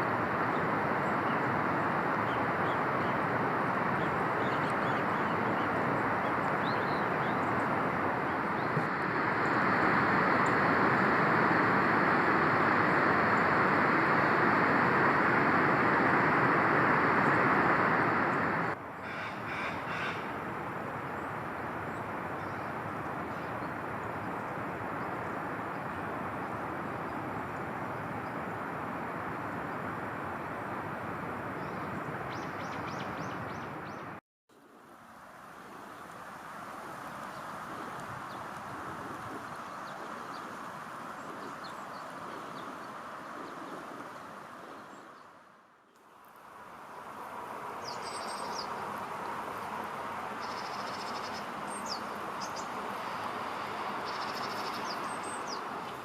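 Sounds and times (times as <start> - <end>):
outdoor rushing noise: 5.8 - 22.0.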